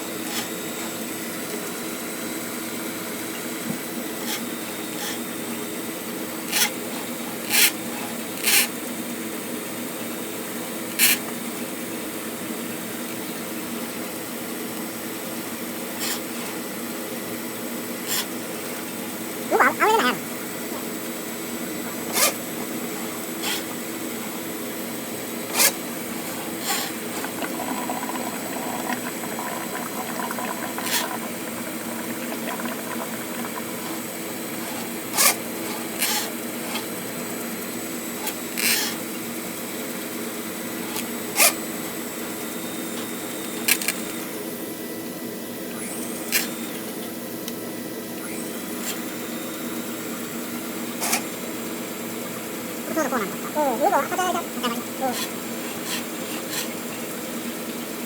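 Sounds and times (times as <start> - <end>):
drain cleaning machine motor hum: 18.6 - 37.8.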